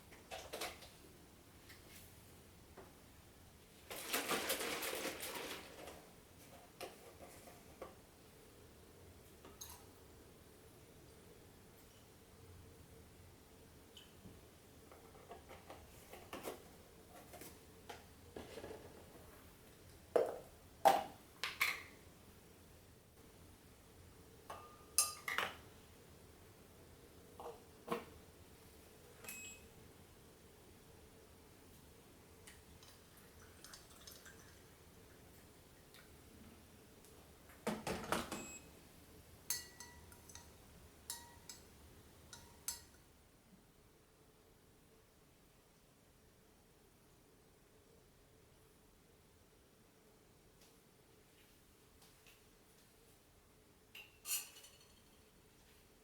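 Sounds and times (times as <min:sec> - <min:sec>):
tableware clattering: 0:24.5 - 0:25.6, 0:39.5 - 0:41.6, 0:54.0 - 0:55.3
light ringing clinks: 0:29.2 - 0:29.7, 0:39.5 - 0:41.7, 0:54.0 - 0:55.3
kitchen clicks and taps: 0:39.5 - 0:41.7, 0:42.3 - 0:43.0.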